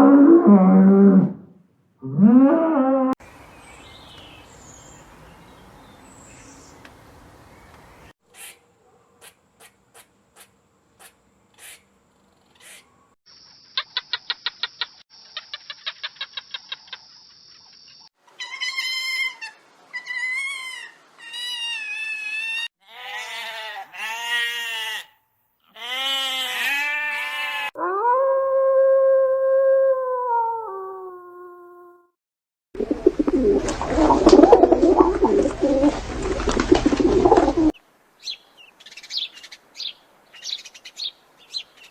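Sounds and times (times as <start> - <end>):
long loud steady animal call: 18.3 - 27.8
wavering quivering animal calls: 32.8 - 37.8.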